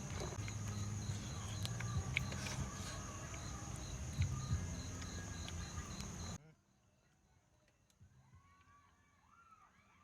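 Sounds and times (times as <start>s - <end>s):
insects buzzing and chirping: 0.0s - 6.4s.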